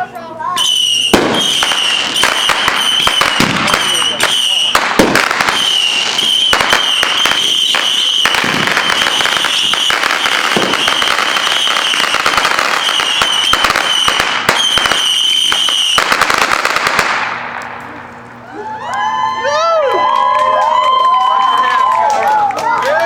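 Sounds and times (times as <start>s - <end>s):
high fireworks whistle: 0.6s - 17.3s
fireworks crackling pops: 0.6s - 18.3s.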